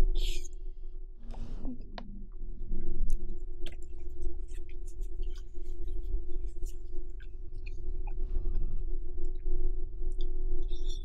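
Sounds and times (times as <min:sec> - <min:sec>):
wet chewing and mouth clicks: 0:03.0 - 0:08.6.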